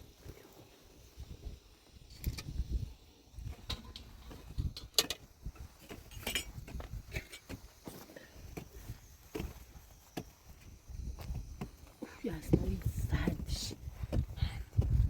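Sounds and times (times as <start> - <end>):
light knocks and clinks: 3.5 - 8.0.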